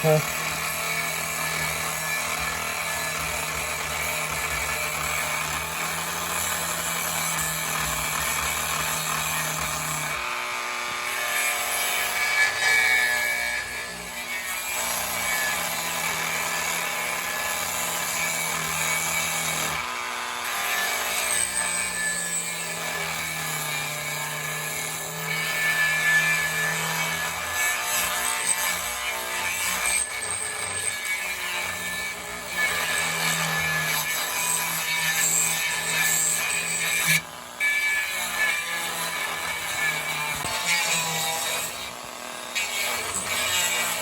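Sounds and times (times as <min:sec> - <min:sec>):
electric power tool on wood: 0:00.0 - 0:44.0.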